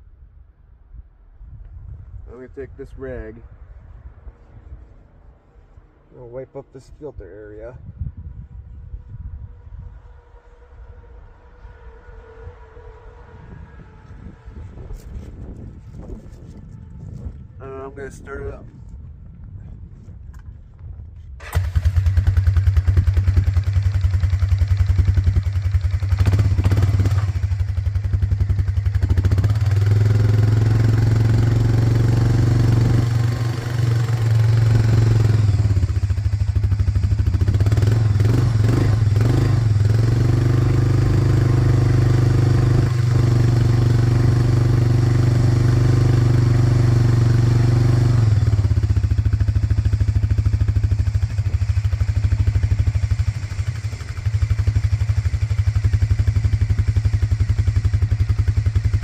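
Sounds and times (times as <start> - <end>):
atv engine starting and idling: 21.4 - 59.0.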